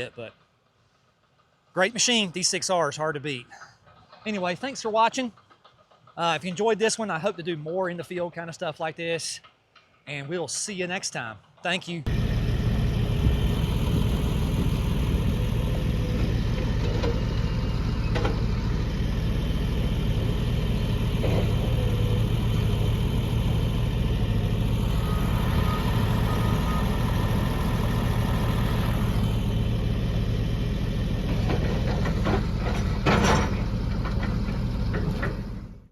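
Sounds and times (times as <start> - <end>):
diesel engine idling: 12.1 - 35.9
clunk: 16.0 - 18.6, 21.1 - 22.2, 31.2 - 35.7.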